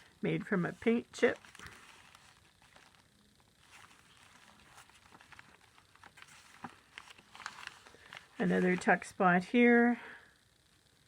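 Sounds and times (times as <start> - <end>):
paper rustling: 0.8 - 9.1.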